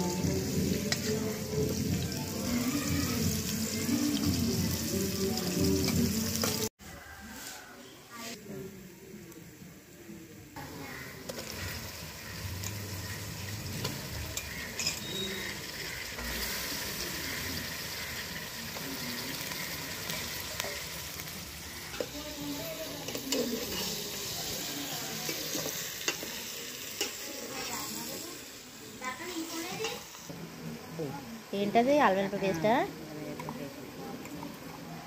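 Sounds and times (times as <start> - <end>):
onions sizzling in pot: 0.0 - 9.6, 10.5 - 35.0
metal spoon stirring and clicking: 13.8 - 15.3, 23.0 - 24.2.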